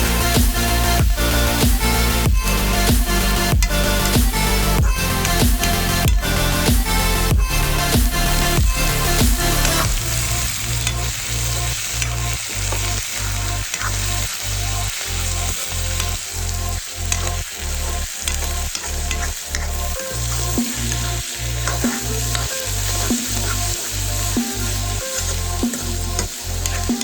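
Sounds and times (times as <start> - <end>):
background music with low beat: 0.0 - 27.0
food sizzling in a pan: 9.8 - 27.0.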